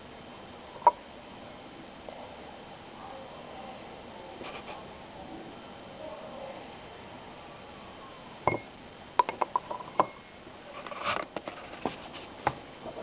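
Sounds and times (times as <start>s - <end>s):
glasses clinking: 8.5s - 8.7s
glassware knock: 8.5s - 9.4s.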